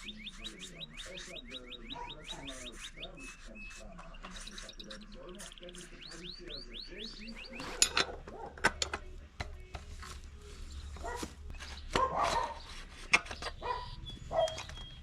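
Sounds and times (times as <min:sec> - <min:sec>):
dog barking: 0:01.9 - 0:02.5, 0:08.0 - 0:08.6, 0:11.0 - 0:11.3, 0:11.9 - 0:12.7, 0:13.6 - 0:14.7
sharp clinks and knocks: 0:07.6 - 0:09.1.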